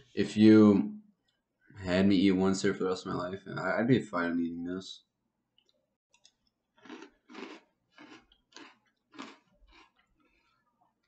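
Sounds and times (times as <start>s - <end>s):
person chewing cereal: 5.6s - 11.0s.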